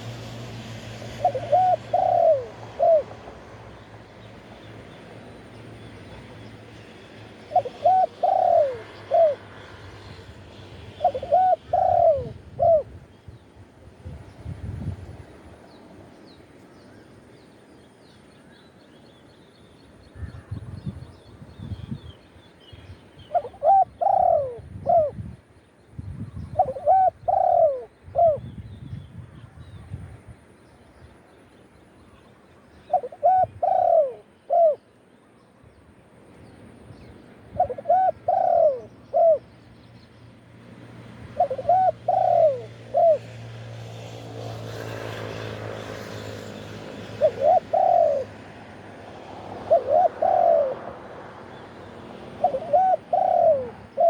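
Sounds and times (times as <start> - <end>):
dove cooing: 1.1 - 3.3, 7.5 - 9.6, 10.9 - 13.0, 23.3 - 25.2, 26.6 - 28.5, 32.9 - 34.8, 37.6 - 39.5, 41.3 - 43.4, 47.0 - 48.4, 49.6 - 51.2, 52.3 - 54.0.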